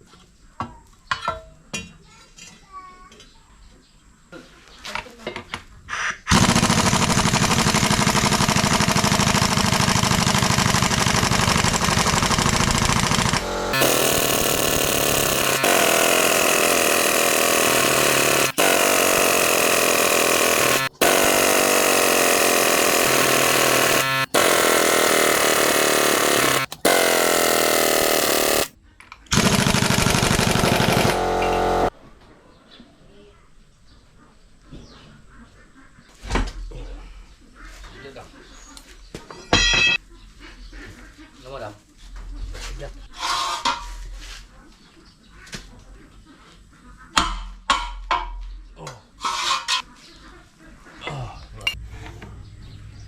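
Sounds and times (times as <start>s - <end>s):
impact wrench hammering: 6.6s - 28.7s, 29.4s - 31.9s.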